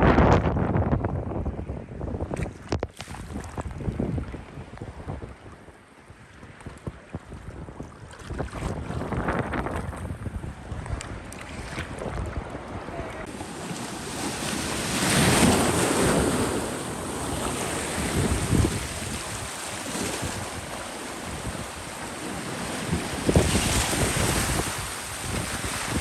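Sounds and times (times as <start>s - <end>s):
wind buffeting microphone: 0.0s - 26.0s
ocean surf washing in: 12.6s - 26.0s.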